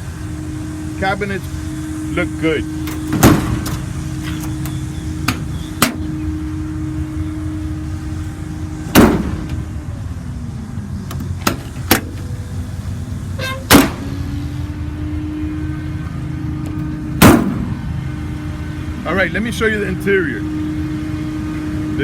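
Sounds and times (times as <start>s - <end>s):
truck engine idling: 0.0s - 22.0s
compartment doors slamming: 2.8s - 6.0s, 8.9s - 9.6s, 13.4s - 14.1s, 17.2s - 17.7s.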